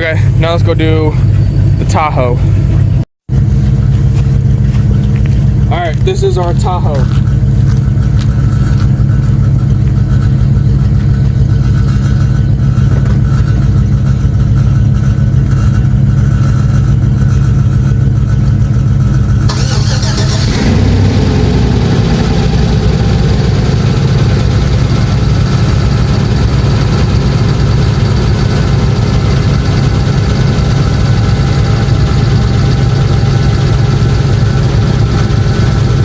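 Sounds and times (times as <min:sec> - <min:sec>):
engine revving and idling: 0:00.0 - 0:36.0
starter motor cranking: 0:19.5 - 0:21.4.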